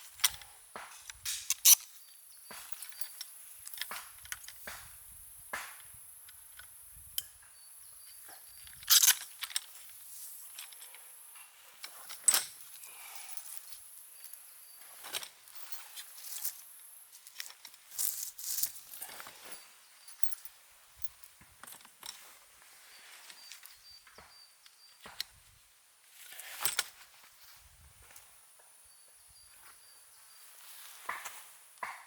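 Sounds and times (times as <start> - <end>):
objects clicking and knocking: 0.1 - 5.0, 8.1 - 14.3
rustling: 8.7 - 20.5.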